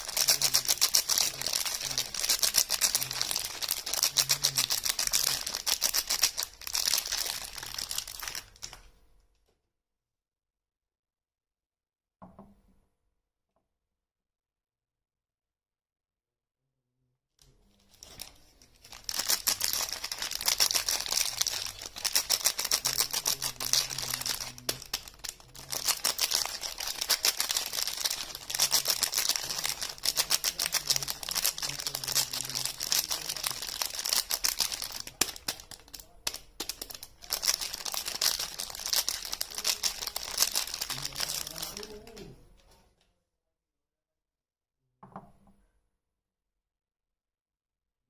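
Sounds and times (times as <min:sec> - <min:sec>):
packaging crinkling and tearing: 0:00.0 - 0:08.8, 0:17.8 - 0:42.2.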